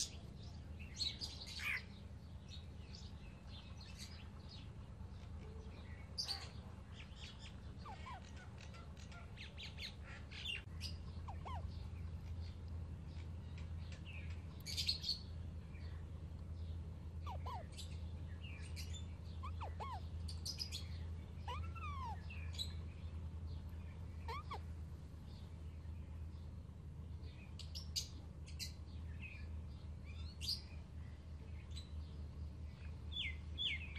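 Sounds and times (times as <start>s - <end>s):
baby parakeets chirping: 0.0s - 16.0s, 16.7s - 26.6s
steady low hum: 0.0s - 33.9s.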